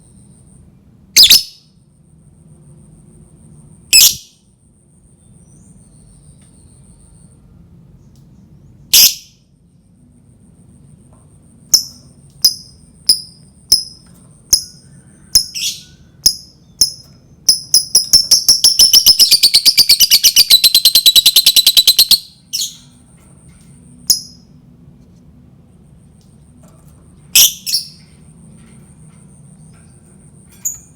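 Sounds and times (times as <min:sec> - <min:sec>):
lovebird chirping and trilling: 0:01.2 - 0:01.6, 0:03.9 - 0:04.3, 0:09.0 - 0:09.4, 0:11.7 - 0:22.9, 0:27.4 - 0:28.0.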